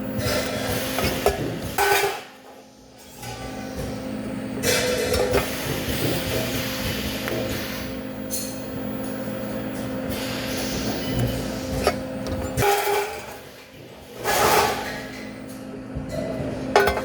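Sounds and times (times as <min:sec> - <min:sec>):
machine hum: 0:00.0 - 0:17.0
metal clanks and knocks: 0:16.7 - 0:17.0.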